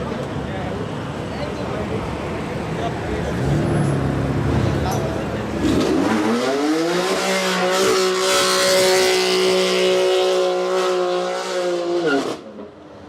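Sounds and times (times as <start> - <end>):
sports car engine revving: 3.1 - 12.5.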